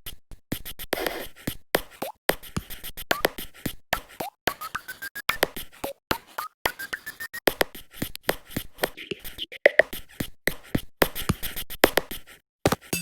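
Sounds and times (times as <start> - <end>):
beat of tapping and clicking: 1.8 - 12.1, 12.7 - 13.0.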